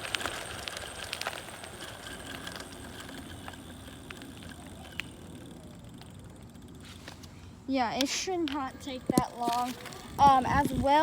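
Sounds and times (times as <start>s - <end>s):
electric bike rolling: 0.0s - 11.0s.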